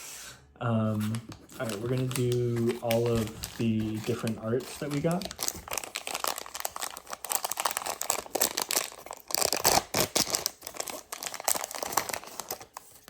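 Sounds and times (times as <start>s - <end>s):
plastic packaging tearing and crinkling: 0.8s - 13.0s.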